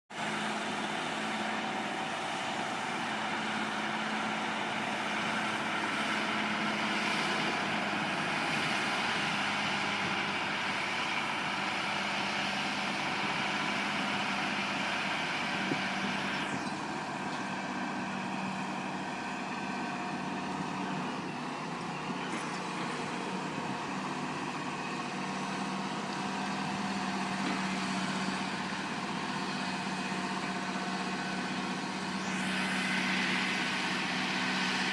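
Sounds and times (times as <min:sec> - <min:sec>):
heavy truck engine running: 0:00.1 - 0:34.9.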